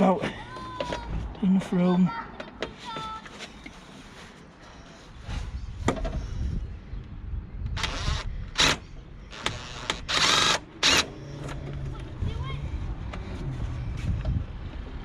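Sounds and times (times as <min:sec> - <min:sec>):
cordless impact driver bursts: 0:07.8 - 0:11.1.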